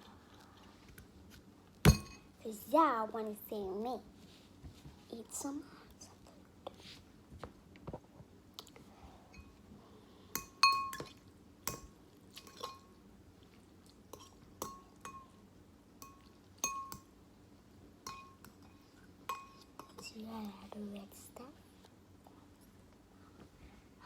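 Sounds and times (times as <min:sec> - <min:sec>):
utensil clinking on bowl: 0:01.9 - 0:02.3, 0:10.4 - 0:13.0, 0:14.1 - 0:15.4, 0:16.0 - 0:17.1, 0:18.0 - 0:20.2.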